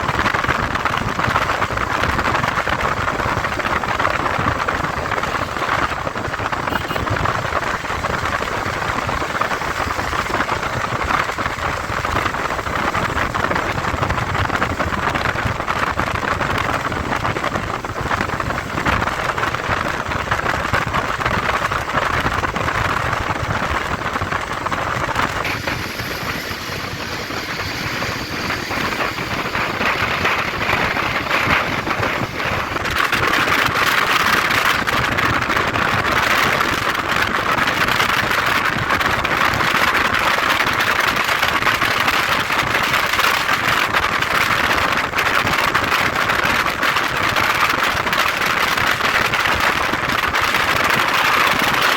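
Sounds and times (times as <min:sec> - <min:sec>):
wind and road noise: 0:00.0 - 0:51.9.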